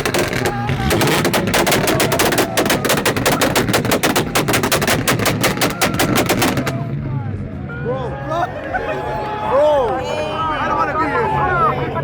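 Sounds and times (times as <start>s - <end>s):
car exhaust bangs and crackles: 0.0s - 7.4s.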